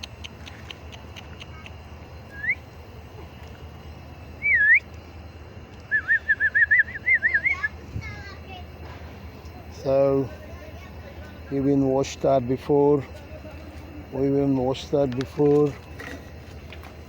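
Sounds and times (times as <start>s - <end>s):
person whistling: 4.4s - 4.8s, 5.9s - 7.7s.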